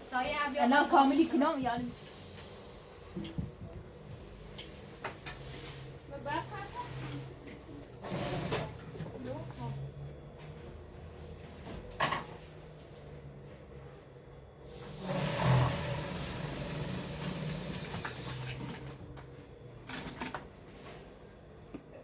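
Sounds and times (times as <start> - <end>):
sewing machine running: 8.0 - 8.8, 14.7 - 19.0.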